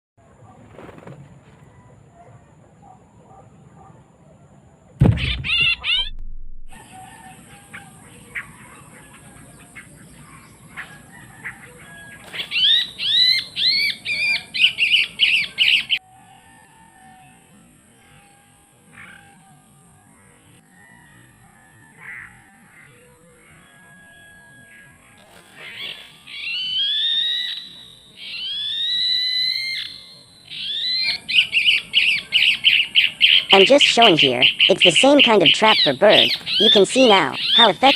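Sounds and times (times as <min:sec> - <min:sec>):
harsh bird calls: 0:05.0 - 0:06.1, 0:06.7 - 0:16.0, 0:24.5 - 0:37.9.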